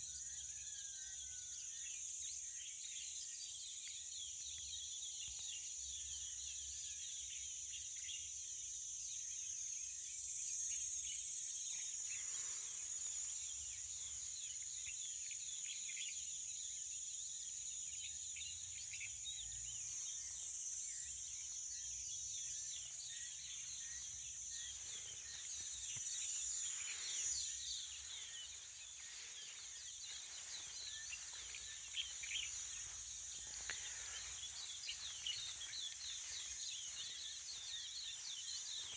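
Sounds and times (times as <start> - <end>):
small birds chirping: 11.1 - 38.9
high-pitched insect drone: 22.8 - 38.9.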